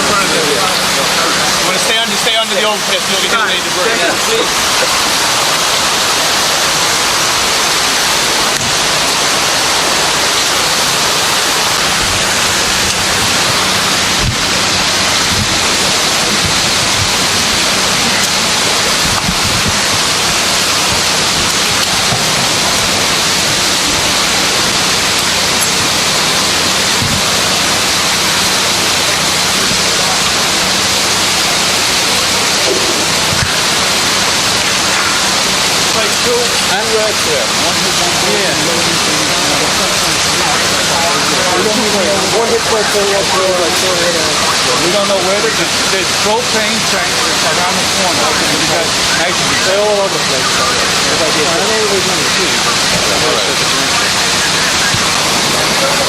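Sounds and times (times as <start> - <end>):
loud rushing noise: 0.0 - 56.0.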